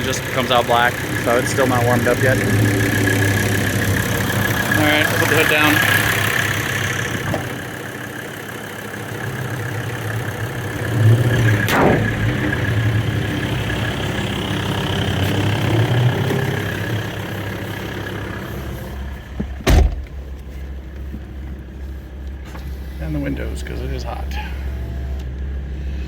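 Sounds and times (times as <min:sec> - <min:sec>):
diesel engine idling: 0:00.0 - 0:26.0
sharp slam: 0:11.6 - 0:12.5, 0:19.6 - 0:20.1
heavy thump: 0:19.4 - 0:20.2.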